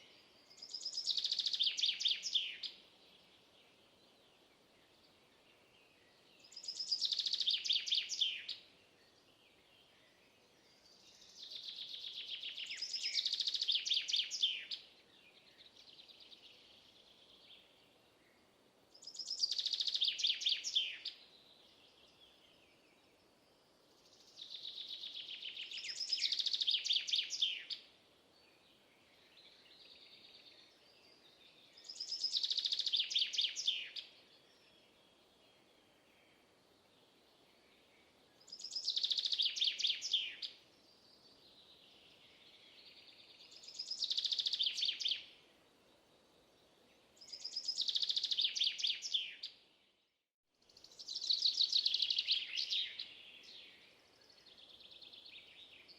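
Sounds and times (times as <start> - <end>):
faint outdoor background noise: 0.0 - 55.9.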